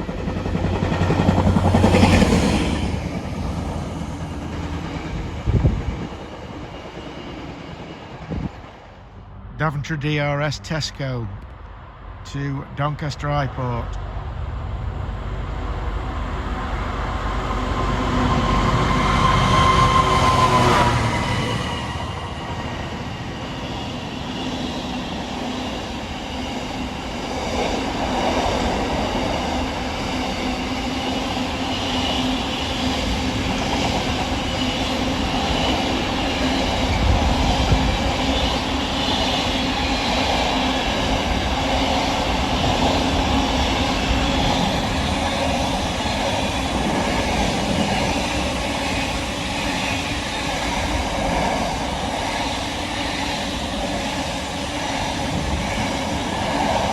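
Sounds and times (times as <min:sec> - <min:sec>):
locomotive high tone: 0:15.9 - 0:27.1.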